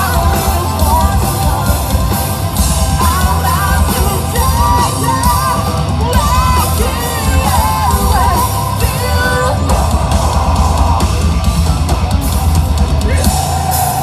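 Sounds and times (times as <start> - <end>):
person singing: 0.0 - 2.2, 2.9 - 11.4
live band playing: 0.0 - 14.0.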